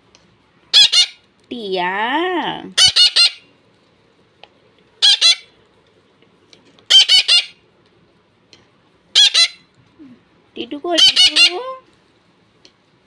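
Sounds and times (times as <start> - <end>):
parrots squawking: 0.7 - 1.2, 2.8 - 3.5, 5.0 - 5.6, 6.9 - 7.6, 9.1 - 9.7, 10.9 - 11.8.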